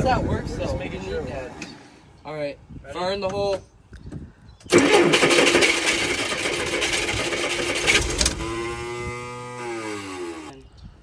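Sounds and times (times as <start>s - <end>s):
boat engine running rough: 4.7s - 10.6s.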